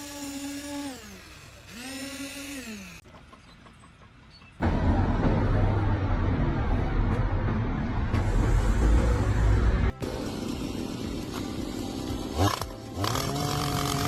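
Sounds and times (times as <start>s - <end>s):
electric power tool motor: 0.0s - 3.0s, 10.0s - 14.0s
loud low rumbling noise: 4.6s - 12.3s.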